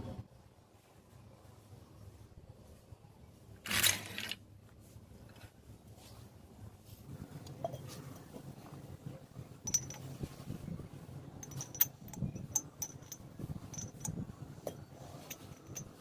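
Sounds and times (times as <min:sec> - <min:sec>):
low steady hum: 0:00.0 - 0:16.0
light metal clicks and clinks: 0:09.6 - 0:10.3, 0:11.4 - 0:16.0.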